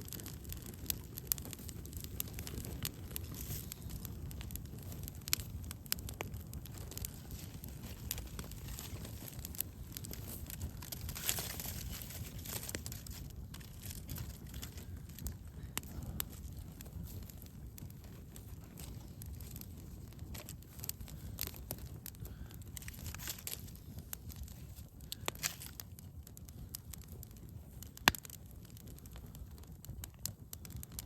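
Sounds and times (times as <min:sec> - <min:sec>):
campfire crackling and popping: 0:00.0 - 0:31.0
low fire rumble: 0:00.0 - 0:31.0.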